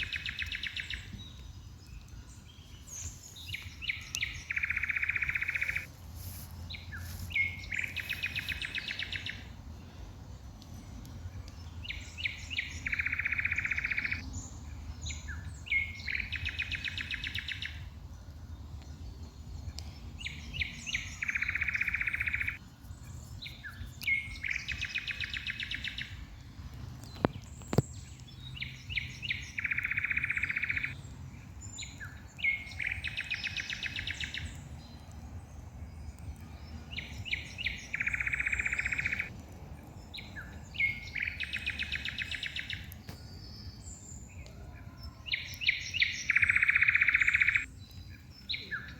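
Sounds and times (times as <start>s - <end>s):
songbird singing buzzy trill: 0.0s - 48.9s.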